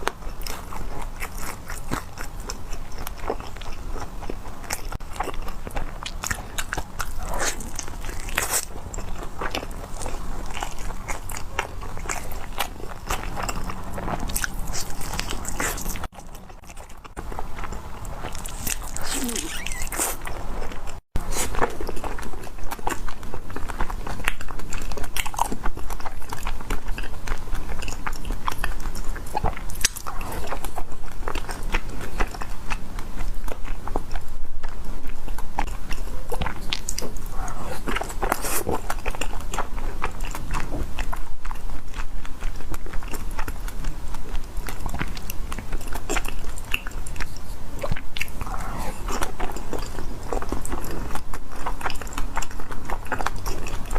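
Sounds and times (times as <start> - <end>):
person biting and chewing food: 0.0 - 34.0, 34.6 - 53.9.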